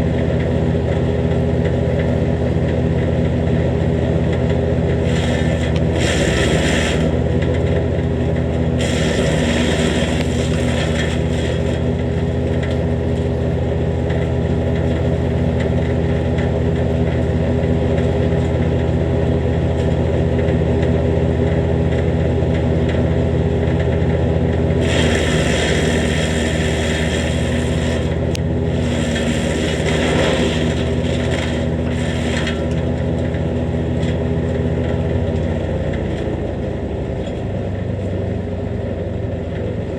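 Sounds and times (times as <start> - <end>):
wood chipper engine running: 0.0 - 39.9
chipper grinding brush: 4.7 - 18.6, 24.7 - 35.2.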